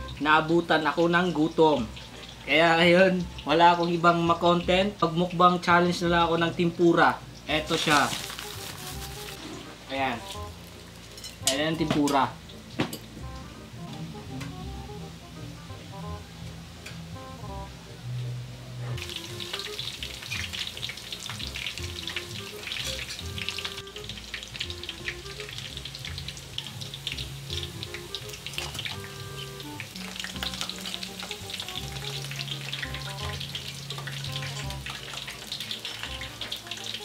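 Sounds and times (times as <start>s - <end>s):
tempura frying in hot oil: 0.0s - 18.0s, 18.8s - 37.0s
metal tongs turning food: 7.6s - 12.3s, 22.2s - 23.6s.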